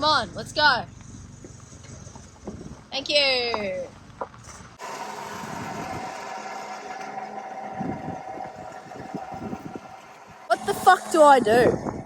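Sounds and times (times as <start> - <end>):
farm vehicle engine idling: 3.8 - 11.4.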